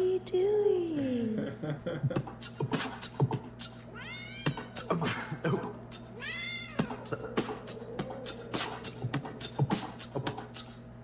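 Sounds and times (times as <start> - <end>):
cat meowing: 3.9 - 4.8, 6.2 - 7.0.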